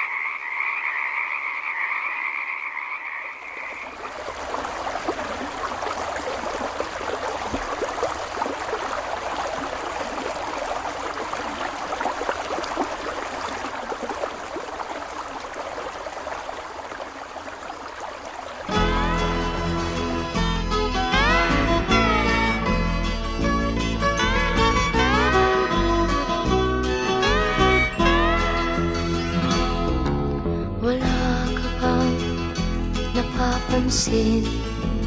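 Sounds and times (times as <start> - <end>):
frogs calling: 0.0 - 19.0.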